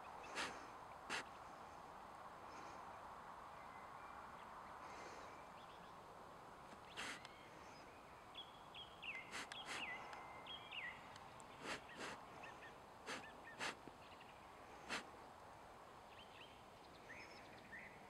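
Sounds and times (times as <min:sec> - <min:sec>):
sharp rustling noises: 0:00.3 - 0:01.3, 0:06.7 - 0:07.2, 0:11.5 - 0:12.2
birds calling in whistled notes: 0:06.8 - 0:15.0.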